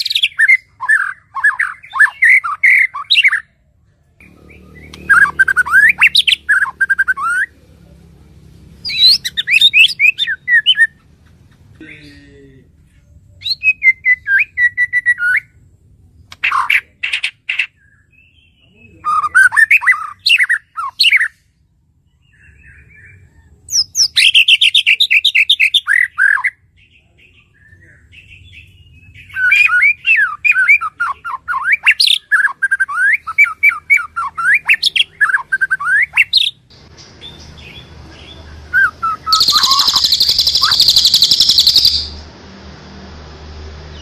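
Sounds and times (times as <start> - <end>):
songbirds chattering and whistling: 0.0 - 42.4
high buzzing bird trill: 4.2 - 7.6, 28.2 - 42.4.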